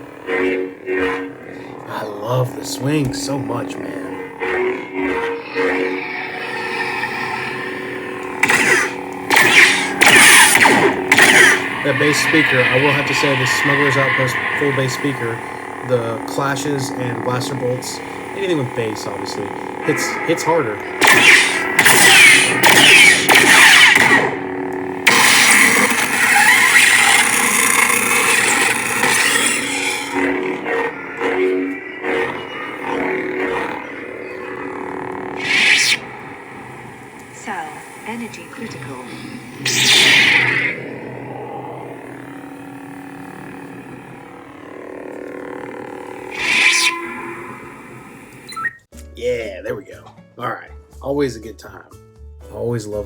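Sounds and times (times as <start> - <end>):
loud crackling effect: 0.0 - 48.5
low hum: 0.0 - 48.8
lightsaber swing: 35.4 - 36.0, 39.6 - 40.8, 46.3 - 47.0.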